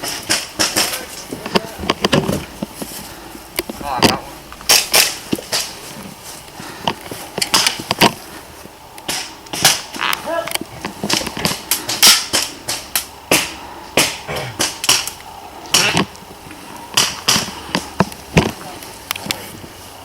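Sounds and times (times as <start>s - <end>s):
airsoft guns popping: 0.0s - 2.8s, 3.5s - 5.8s, 6.8s - 8.2s, 9.0s - 19.4s.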